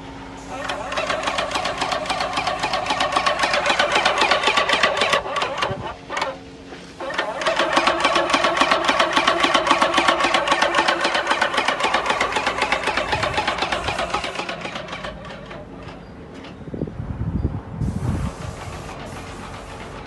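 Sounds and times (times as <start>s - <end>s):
paint sprayer pump pulsing: 0.4s - 16.1s, 18.2s - 20.0s.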